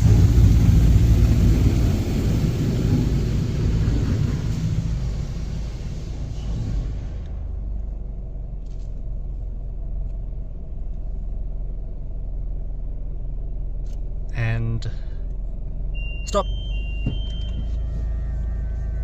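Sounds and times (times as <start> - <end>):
hiss: 0.0 - 7.4
car engine low rumble: 0.0 - 19.0.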